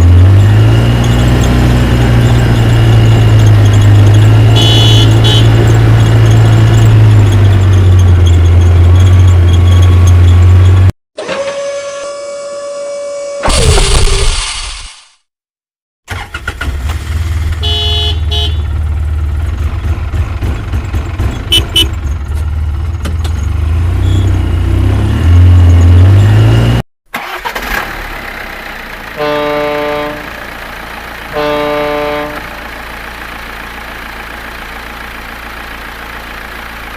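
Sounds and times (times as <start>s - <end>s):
truck engine revving and idling: 0.0s - 10.9s, 16.4s - 36.9s
truck horn honks: 4.4s - 5.9s, 17.6s - 18.7s, 21.5s - 22.0s, 29.1s - 30.6s, 31.2s - 32.7s.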